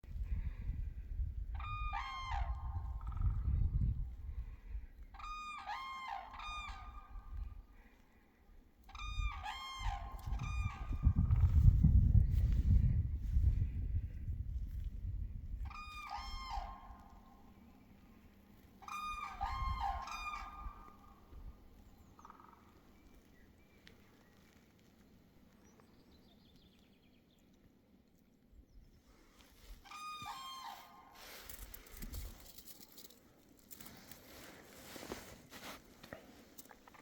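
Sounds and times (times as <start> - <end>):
cranes trumpeting: 29.8 - 32.0.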